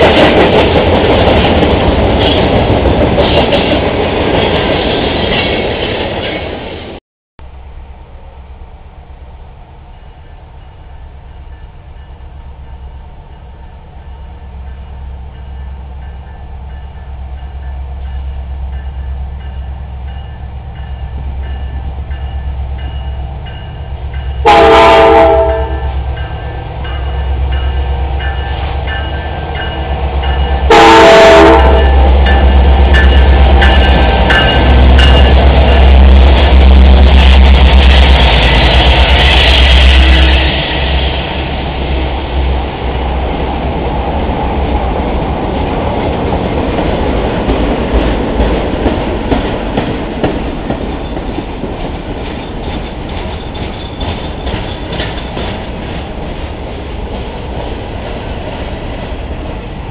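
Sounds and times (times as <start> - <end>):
train engine rumble: 0.0 - 59.9
train horn blasts: 24.3 - 27.1, 30.6 - 35.9
wheels clattering over rails: 45.5 - 58.3.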